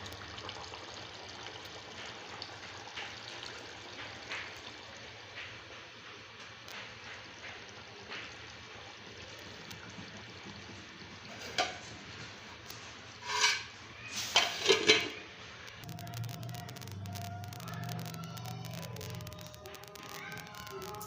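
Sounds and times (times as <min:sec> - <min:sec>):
watery hiss of cooking liquid: 0:00.0 - 0:15.7.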